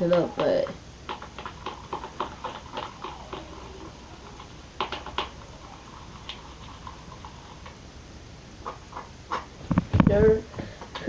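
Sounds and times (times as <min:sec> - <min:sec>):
slime mixing clicks and taps: 0:00.0 - 0:07.8.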